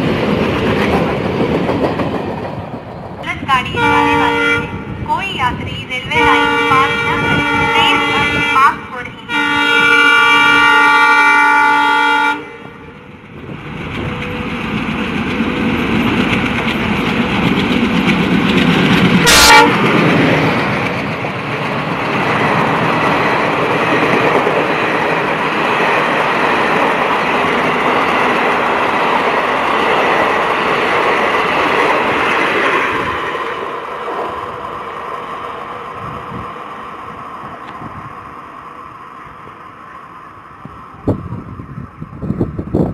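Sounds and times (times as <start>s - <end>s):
train passing at speed: 0.0s - 42.9s
locomotive horn: 3.7s - 4.9s, 6.1s - 13.1s, 19.2s - 19.9s.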